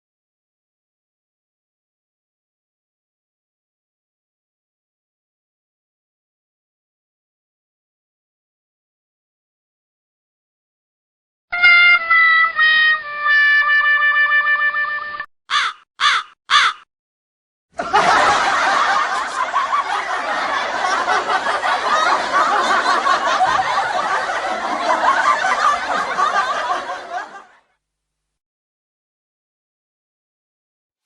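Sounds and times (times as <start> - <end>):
held musical note: 11.5 - 15.3
crow cawing: 15.5 - 16.9
crowd laughing: 17.8 - 27.8.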